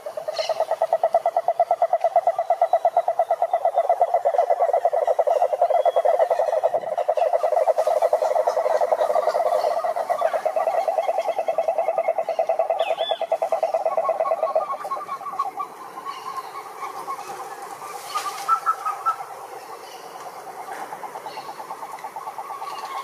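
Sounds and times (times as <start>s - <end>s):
frog pulsing trill: 0.0s - 17.1s
faint frogs calling: 0.0s - 23.0s.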